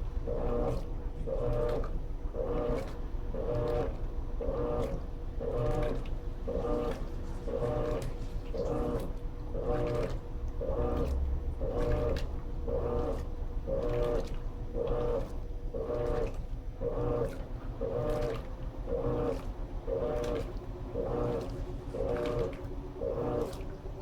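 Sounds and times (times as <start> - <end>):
low motor hum: 0.0 - 24.0
washing machine agitating: 0.0 - 24.0.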